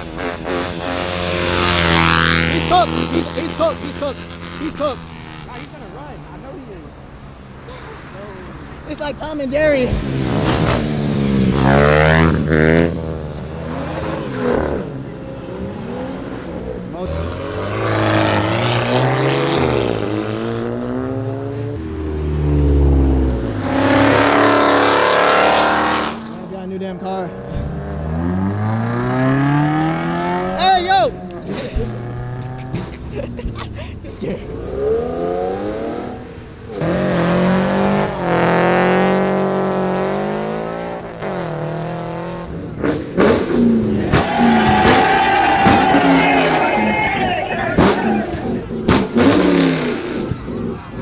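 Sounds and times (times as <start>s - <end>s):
car engines revving past: 0.0s - 51.0s
loud rush: 42.8s - 51.0s.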